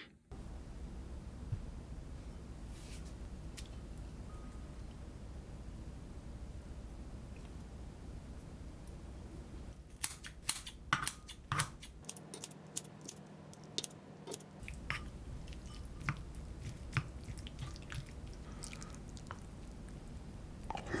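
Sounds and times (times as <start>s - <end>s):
chewing: 14.6s - 20.0s.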